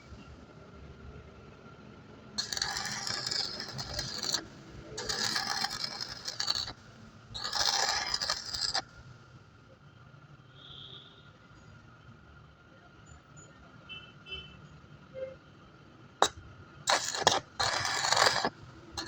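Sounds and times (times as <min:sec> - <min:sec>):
long scraping strokes: 0:02.4 - 0:04.4, 0:05.0 - 0:06.8, 0:07.4 - 0:08.8, 0:16.9 - 0:18.6.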